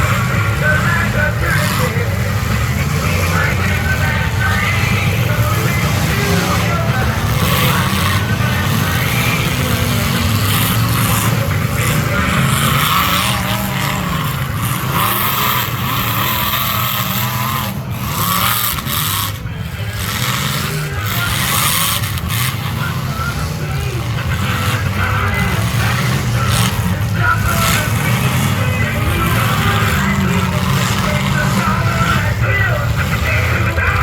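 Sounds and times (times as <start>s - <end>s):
car engines revving: 0.0s - 34.0s.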